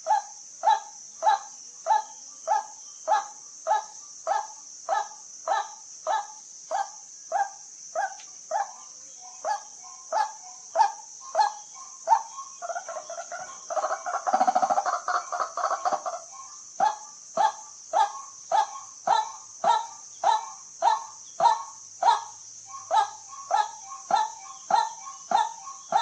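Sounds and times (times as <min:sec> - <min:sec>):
insect hiss: 0:00.0 - 0:26.0
waterhen calling: 0:09.4 - 0:26.0.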